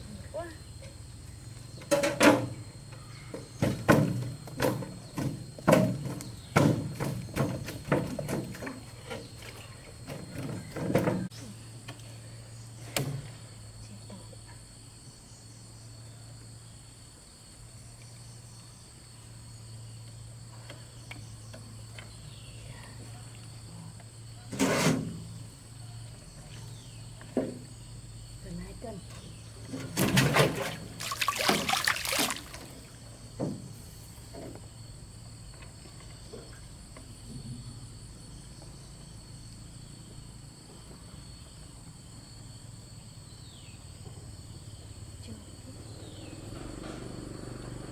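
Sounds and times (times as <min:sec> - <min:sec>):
knocks and clattering: 0:03.4 - 0:11.3
water splashing and sloshing: 0:29.6 - 0:33.6.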